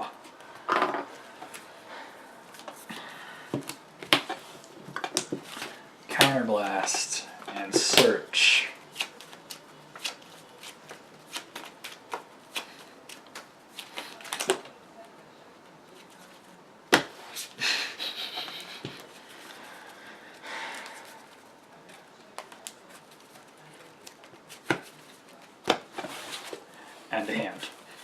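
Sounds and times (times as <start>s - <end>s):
cards rustling: 2.4s - 14.8s, 18.4s - 28.0s
cards clicking and flicking: 8.9s - 14.7s.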